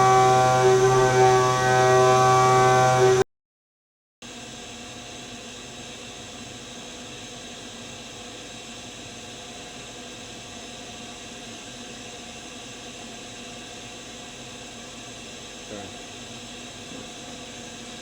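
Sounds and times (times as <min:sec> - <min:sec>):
cnc machine running: 0:00.0 - 0:03.2.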